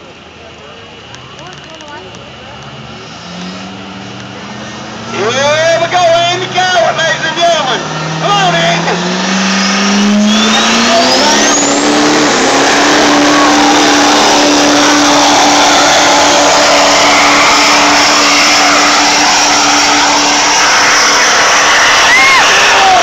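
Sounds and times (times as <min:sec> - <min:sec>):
diesel engine running under load: 0:00.0 - 0:23.0
whistle-like turbo chirps: 0:09.5 - 0:11.9.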